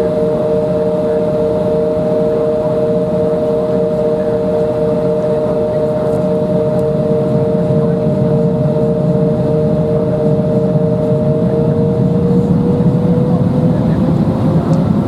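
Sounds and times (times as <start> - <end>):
jet engines humming: 0.0 - 15.0.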